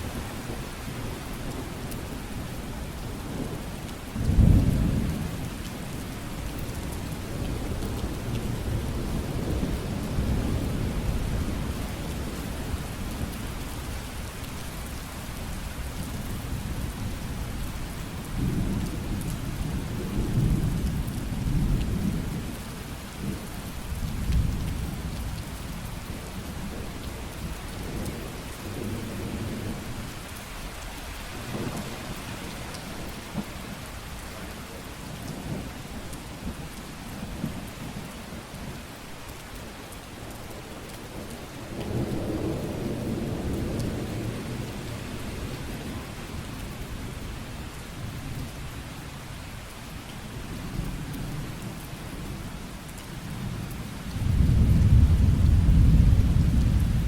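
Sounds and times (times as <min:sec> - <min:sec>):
rolling thunder: 0:04.2 - 0:05.4, 0:54.2 - 0:57.0.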